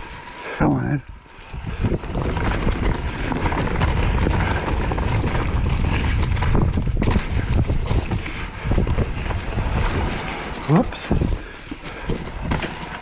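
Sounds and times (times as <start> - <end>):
tyre and trail rumble: 0.0 - 13.0
wind buffeting microphone: 1.0 - 13.0
bike knocks and rattles: 1.5 - 13.0.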